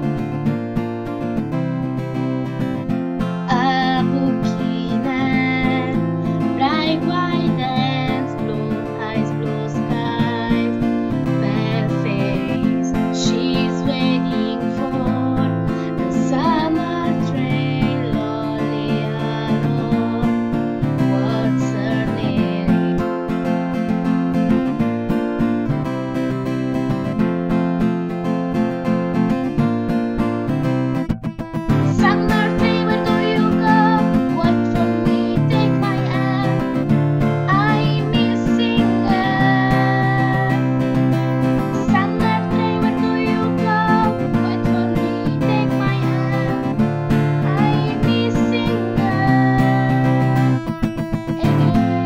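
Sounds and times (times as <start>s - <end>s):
acoustic guitar strumming: 0.0s - 52.0s
person singing: 3.4s - 23.1s, 31.7s - 52.0s.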